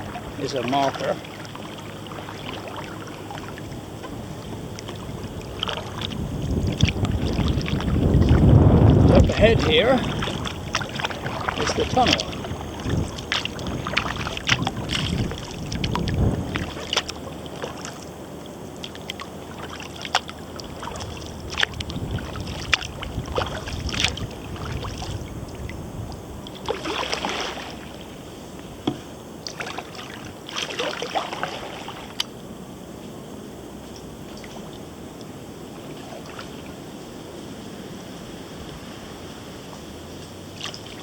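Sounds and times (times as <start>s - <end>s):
water drips and splashes: 0.0s - 18.2s, 18.8s - 28.2s, 28.9s - 32.3s, 34.0s - 36.8s, 40.2s - 41.0s
wind rumble on microphone: 0.0s - 30.5s, 31.2s - 41.0s
paddle swishing through water: 0.0s - 41.0s
light paddle knock: 28.8s - 29.1s.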